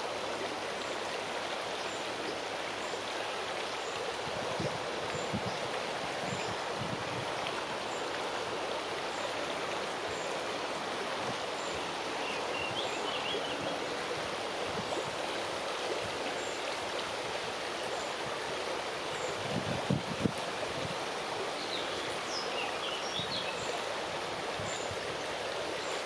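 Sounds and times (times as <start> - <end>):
wind rushing through leaves: 0.0 - 26.0.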